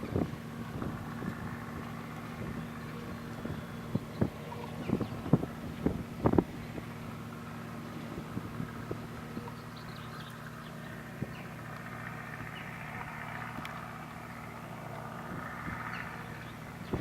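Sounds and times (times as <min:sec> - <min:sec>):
tractor diesel engine running: 0:00.0 - 0:17.0
faint clicks: 0:13.5 - 0:14.2.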